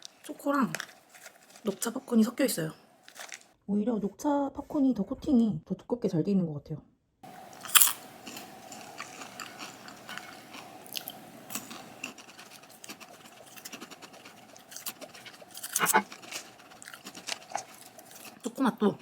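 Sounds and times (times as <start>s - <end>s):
crunching and chewing: 0.0s - 1.9s, 3.0s - 3.5s, 7.2s - 19.0s
crunchy bite into popcorn: 7.3s - 18.5s.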